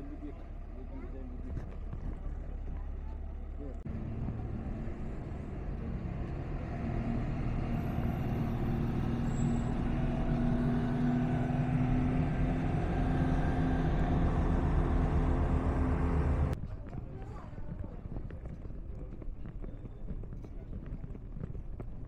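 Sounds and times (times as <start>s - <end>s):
train rumbling: 0.0s - 16.6s.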